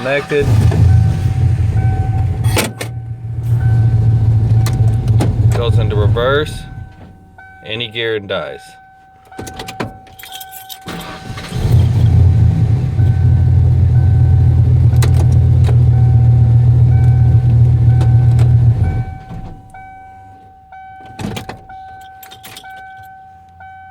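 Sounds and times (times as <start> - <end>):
car engine running: 0.0 - 7.4, 11.0 - 19.8
dashboard warning chime: 0.0 - 11.8, 12.8 - 23.9.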